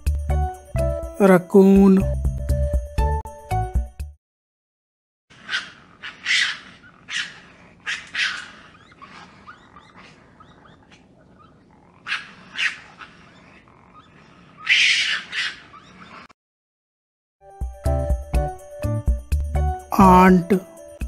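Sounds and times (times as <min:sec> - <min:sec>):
raccoon chittering cries: 0:05.4 - 0:16.3.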